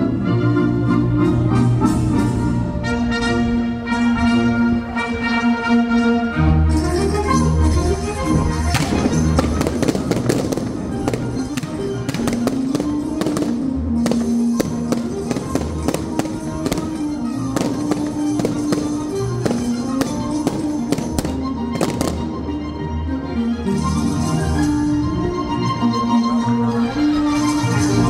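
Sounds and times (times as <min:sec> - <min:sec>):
music: 0:00.0 - 0:28.0
fireworks bangs and crackles: 0:08.6 - 0:22.4.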